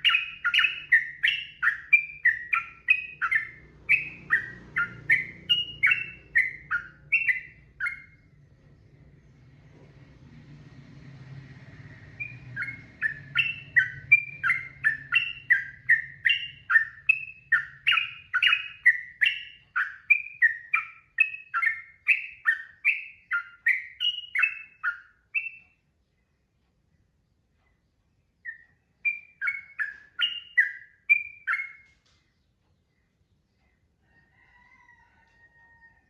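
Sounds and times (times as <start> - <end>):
bird singing whistled notes: 0.0 - 8.4, 12.0 - 25.8, 28.4 - 32.0
faint low hum: 0.0 - 36.0.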